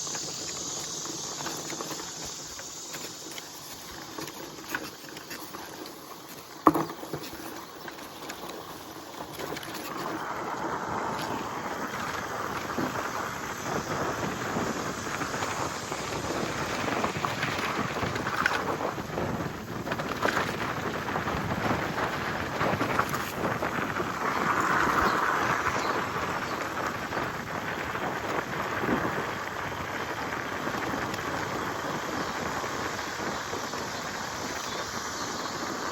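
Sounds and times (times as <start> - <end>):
tyres rustling through vegetation: 0.0 - 28.6.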